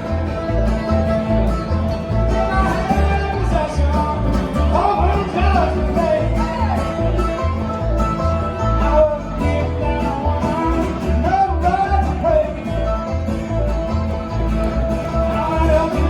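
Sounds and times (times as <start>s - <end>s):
steady bass beat: 0.0s - 16.0s
strummed acoustic guitar: 0.0s - 16.0s
person singing: 2.2s - 7.6s, 8.7s - 13.7s, 15.0s - 16.0s.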